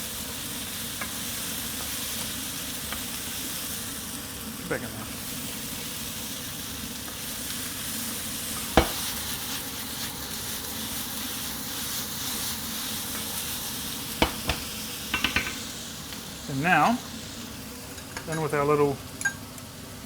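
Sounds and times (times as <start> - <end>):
vegetables sizzling in a pan: 0.0 - 20.0
sharp knock: 8.8 - 9.0, 14.2 - 14.7.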